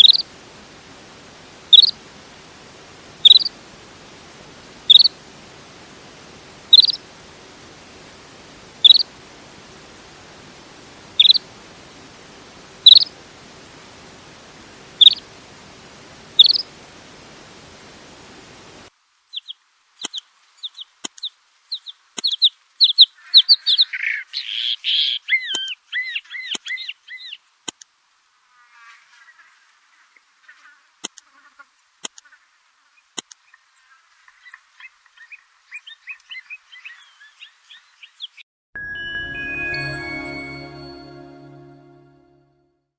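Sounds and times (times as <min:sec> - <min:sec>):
rapid twittering chirps: 0:00.0 - 0:00.2, 0:01.7 - 0:02.0, 0:03.2 - 0:03.6, 0:04.9 - 0:05.2, 0:06.7 - 0:07.0, 0:08.8 - 0:09.1, 0:11.2 - 0:11.4, 0:12.9 - 0:13.1, 0:15.0 - 0:15.2, 0:16.4 - 0:16.7
steady hiss: 0:00.0 - 0:22.8
bird chirping: 0:01.7 - 0:02.0, 0:03.2 - 0:03.5, 0:04.9 - 0:05.1, 0:06.7 - 0:07.0, 0:08.8 - 0:09.0, 0:11.2 - 0:11.4, 0:12.9 - 0:13.1, 0:15.0 - 0:15.2, 0:16.4 - 0:16.6.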